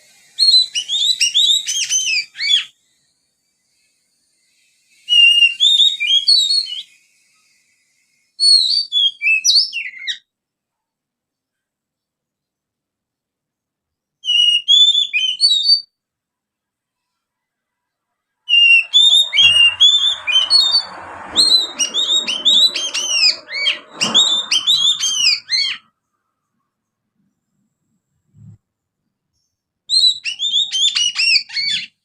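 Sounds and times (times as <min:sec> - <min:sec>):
bird chattering song: 0:18.5 - 0:25.9, 0:29.4 - 0:32.0.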